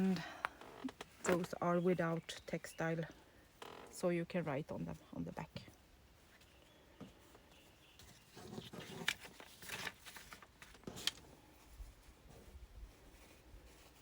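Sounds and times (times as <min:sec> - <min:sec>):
paper and fabric rustling: 0:06.2 - 0:14.0.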